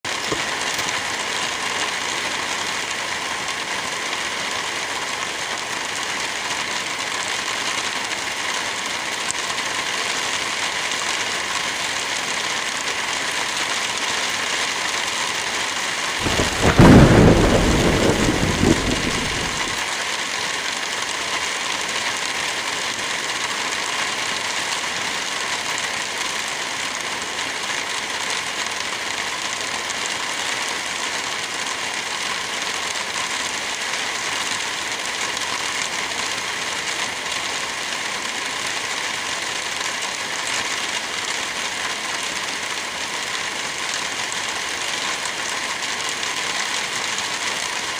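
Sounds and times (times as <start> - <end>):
steady rain: 0.0 - 47.9
thunder roll: 16.2 - 19.8.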